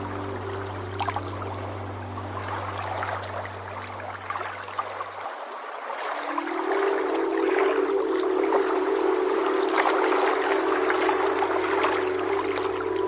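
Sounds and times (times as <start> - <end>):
high sustained synth chord: 0.0 - 5.0, 6.3 - 13.0
synth drone notes: 0.0 - 5.2, 6.2 - 13.0
sea waves washing and fizzing: 0.0 - 13.0.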